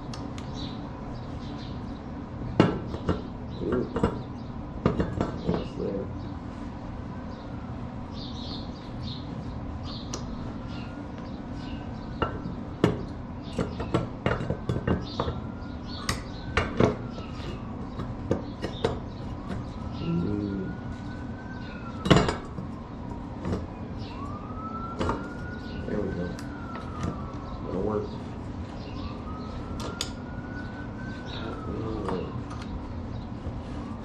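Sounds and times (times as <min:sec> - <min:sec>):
steady low hum: 0:00.0 - 0:34.0
distant siren wailing: 0:00.1 - 0:34.0
metal clinking and clanking: 0:12.2 - 0:15.4, 0:22.0 - 0:22.6.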